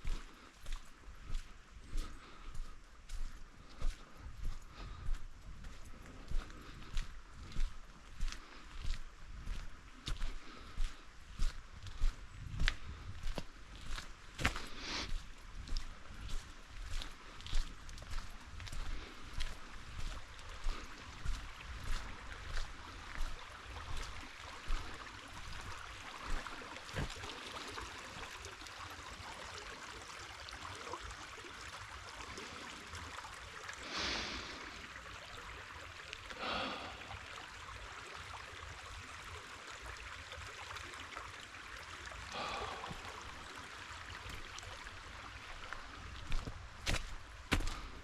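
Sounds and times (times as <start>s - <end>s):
footsteps on a trail: 0.0s - 28.3s, 33.8s - 34.6s, 36.3s - 37.0s, 42.3s - 43.4s, 45.6s - 48.0s
flowing water rushing: 0.0s - 48.0s
short breaths: 14.5s - 15.2s, 33.8s - 34.9s, 36.3s - 37.3s, 42.3s - 43.3s.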